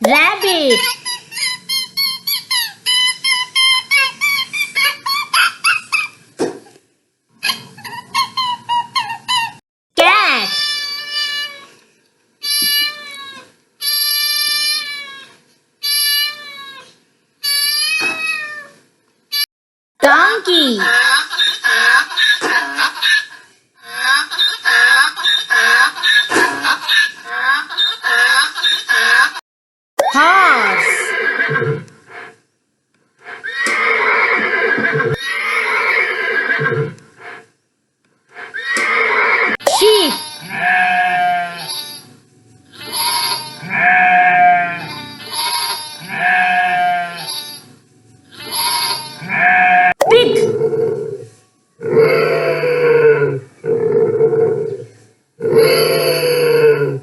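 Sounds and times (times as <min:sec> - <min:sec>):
cat meowing: 0:16.2 - 0:16.9, 0:17.6 - 0:18.8
horse neighing: 0:30.8 - 0:31.9, 0:33.4 - 0:37.0, 0:38.4 - 0:39.6, 0:55.4 - 0:57.0.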